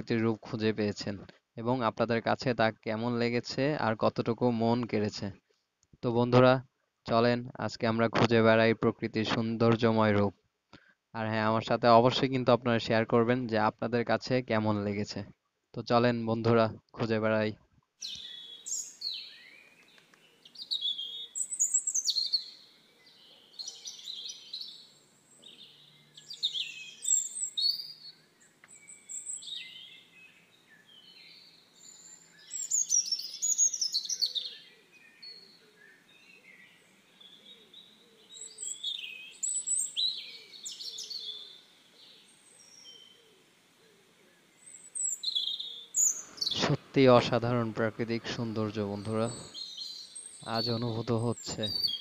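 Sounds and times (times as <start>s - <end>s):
birds chirping and trilling: 18.0s - 52.0s.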